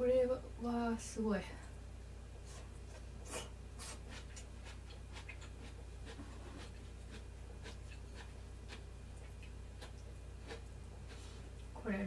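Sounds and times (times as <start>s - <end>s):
steady low hum: 0.0s - 12.0s
person chewing: 2.5s - 11.7s.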